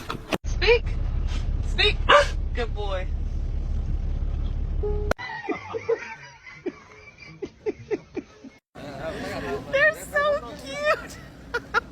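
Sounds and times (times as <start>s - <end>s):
steady low rumble: 0.5s - 5.2s.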